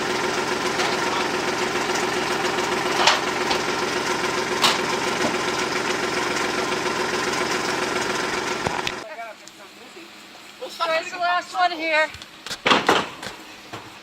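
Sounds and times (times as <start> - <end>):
utility vehicle engine idling: 0.0 - 10.8.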